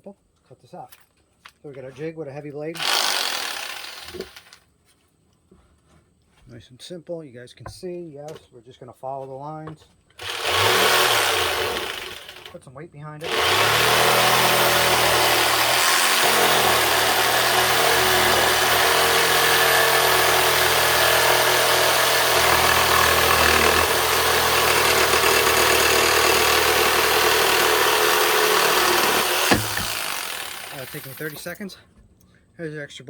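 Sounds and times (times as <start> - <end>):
jigsaw cutting wood: 2.8 - 4.6, 10.2 - 12.6, 13.2 - 31.6.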